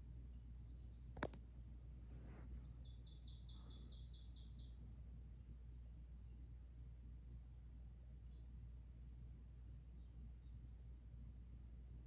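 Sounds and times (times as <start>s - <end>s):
small bird chirping: 0.6s - 1.4s, 2.5s - 4.8s, 9.6s - 11.0s.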